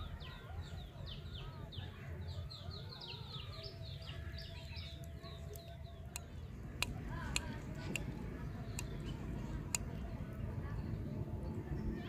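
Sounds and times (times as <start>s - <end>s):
low outdoor rumble: 4.2s - 12.0s.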